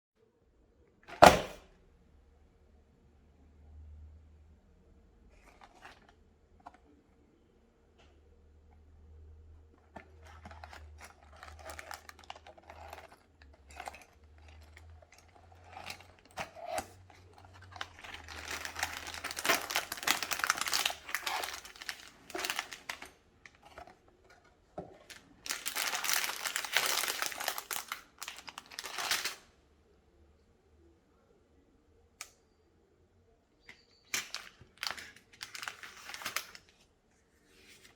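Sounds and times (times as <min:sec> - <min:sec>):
plastic packaging crinkling and tearing: 0:10.0 - 0:24.0, 0:25.0 - 0:29.4, 0:34.1 - 0:36.8.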